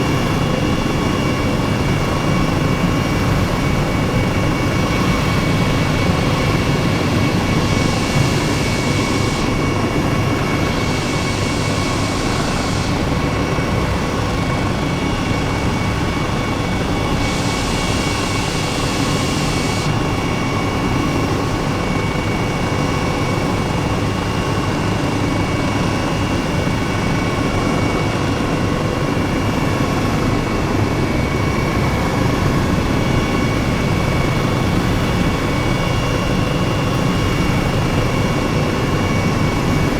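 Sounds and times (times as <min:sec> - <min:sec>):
jet engine drone with whine: 0:00.0 - 0:39.9
bursts of hiss: 0:10.5 - 0:20.0.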